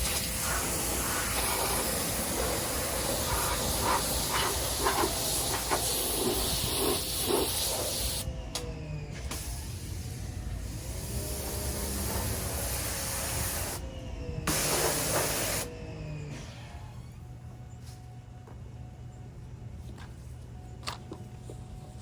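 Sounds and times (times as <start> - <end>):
water spray hissing on siding: 0.0 - 8.2, 10.8 - 13.8, 14.5 - 15.7.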